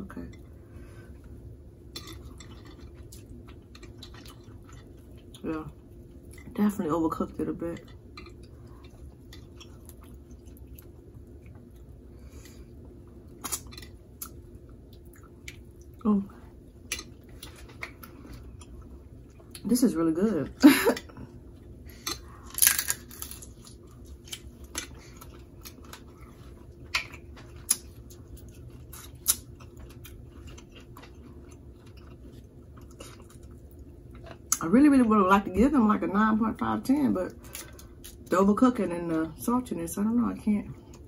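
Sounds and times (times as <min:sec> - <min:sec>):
person chewing food: 0:00.4 - 0:06.5, 0:07.8 - 0:19.6, 0:21.3 - 0:34.6.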